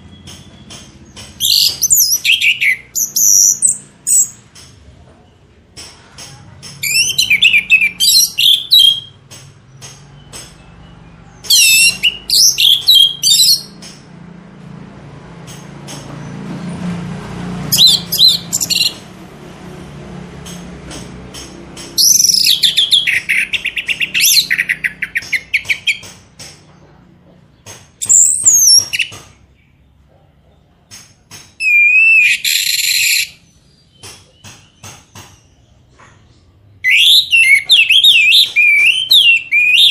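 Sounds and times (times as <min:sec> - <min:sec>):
songbird chirps and trills: 0:00.0 - 0:14.3, 0:20.3 - 0:39.9.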